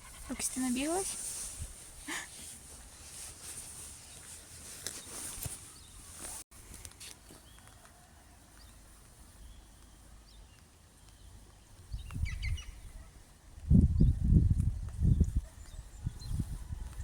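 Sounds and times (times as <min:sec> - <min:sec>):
wind buffeting microphone: 0:11.8 - 0:17.0.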